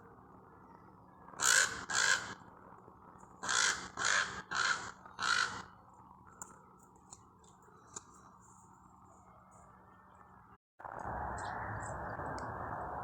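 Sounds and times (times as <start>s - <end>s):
crows cawing: 1.3s - 2.4s, 3.4s - 5.8s.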